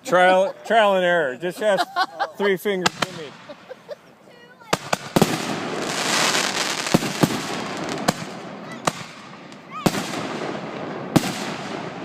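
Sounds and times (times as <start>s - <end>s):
fireworks banging: 2.8s - 4.0s, 4.7s - 12.0s
fireworks crackling: 2.8s - 4.0s, 4.7s - 12.0s.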